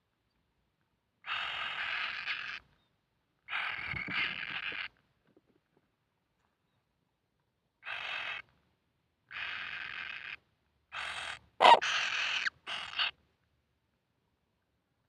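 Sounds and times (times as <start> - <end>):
chicks hissing begging calls: 11.6 - 12.5.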